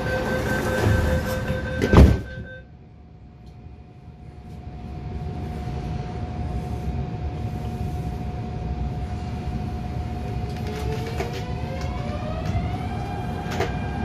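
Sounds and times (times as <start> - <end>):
electric train whine: 0.0 - 14.0
train rumble: 0.0 - 14.0.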